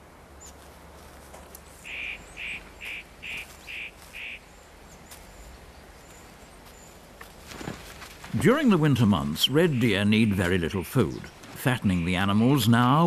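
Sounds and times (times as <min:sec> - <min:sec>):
bird calling harshly: 0:01.8 - 0:04.5.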